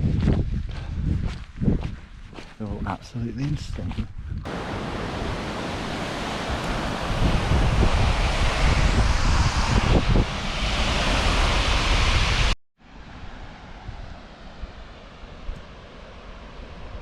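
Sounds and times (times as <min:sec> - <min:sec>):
wind buffeting microphone: 0:00.0 - 0:12.6
quiet steady breeze: 0:00.0 - 0:17.0.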